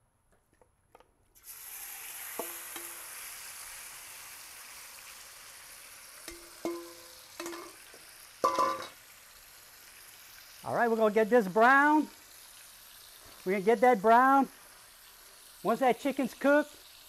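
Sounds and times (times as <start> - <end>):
chicken sizzling in hot oil: 1.4 - 17.0
metal spatula clinking on wok: 6.2 - 7.8, 8.4 - 9.0.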